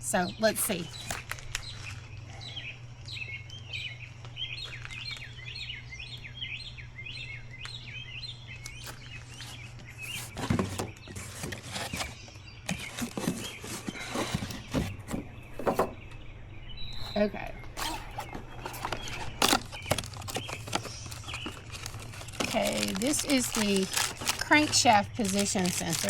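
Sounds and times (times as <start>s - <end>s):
steady low hum: 0.0s - 26.0s
small birds chirping: 0.1s - 26.0s
box of parts rustling: 10.0s - 15.8s, 17.8s - 26.0s.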